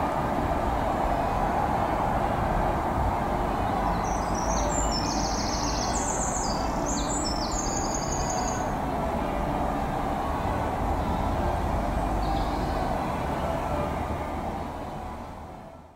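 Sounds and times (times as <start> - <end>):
diesel train rumbling: 0.0 - 15.9
songbird trilling: 4.0 - 8.7.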